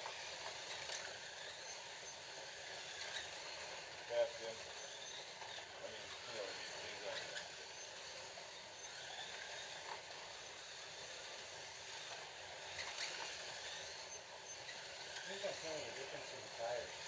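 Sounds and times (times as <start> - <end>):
slot cars whirring on track: 0.0 - 17.0.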